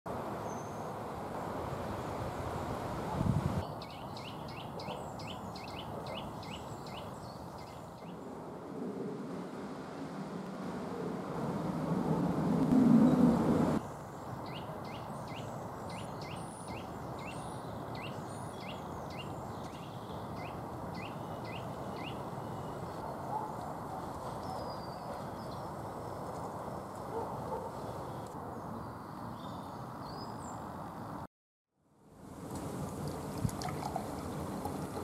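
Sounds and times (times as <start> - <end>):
steady outdoor hiss: 0.1 - 35.0
loud low rumble: 8.5 - 13.8
wild bird chirping: 12.7 - 23.5.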